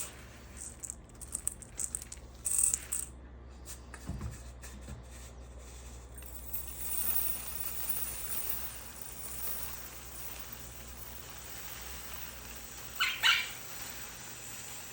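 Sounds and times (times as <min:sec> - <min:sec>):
steady hiss: 0:07.6 - 0:14.9.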